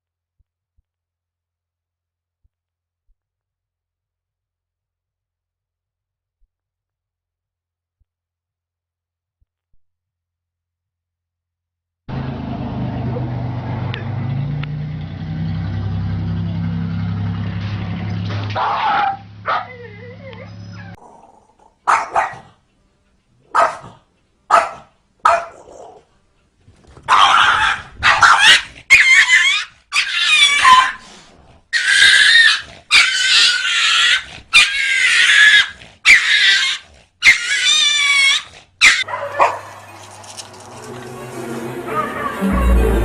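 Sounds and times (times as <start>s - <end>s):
dog barking and yelping: 18.6s - 21.0s, 21.6s - 22.6s, 23.5s - 26.1s, 27.0s - 31.0s, 31.7s - 40.4s.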